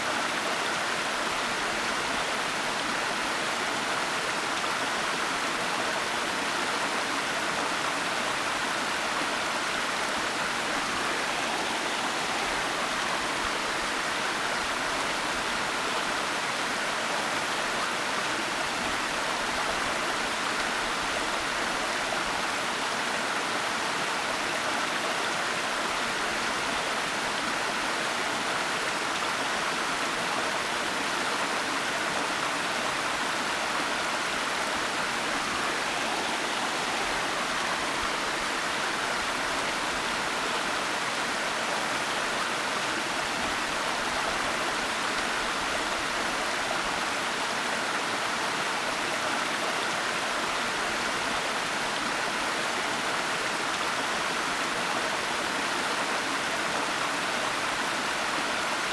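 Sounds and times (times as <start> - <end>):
waterfall rushing: 10.2 - 14.0, 32.9 - 47.4.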